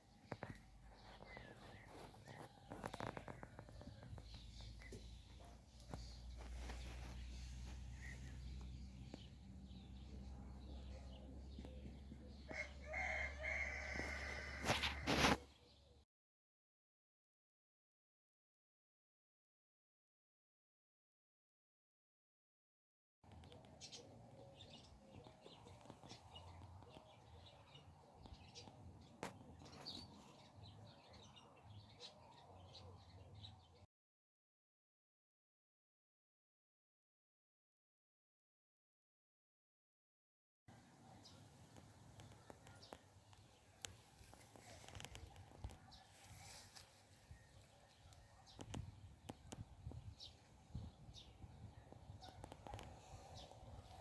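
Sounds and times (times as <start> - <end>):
small birds chirping: 0.0 - 14.4, 23.3 - 33.8, 40.7 - 54.0
rooster crowing: 12.5 - 15.3.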